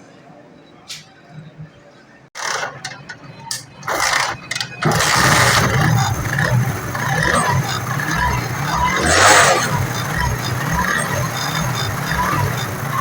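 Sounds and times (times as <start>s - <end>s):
engine starter scraping bursts: 2.4s - 13.0s
motorcycle engine running: 3.8s - 13.0s.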